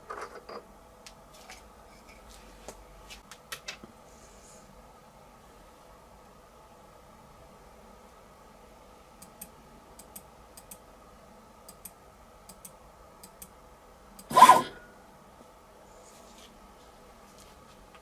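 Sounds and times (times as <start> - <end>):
faint steady hum: 0.0 - 18.0
loud rasping burst: 14.3 - 14.8.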